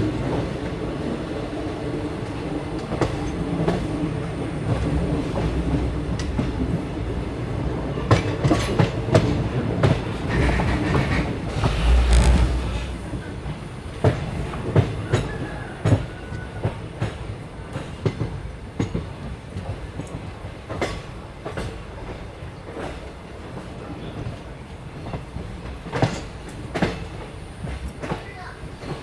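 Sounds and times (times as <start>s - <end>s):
train rumbling: 0.0s - 29.0s.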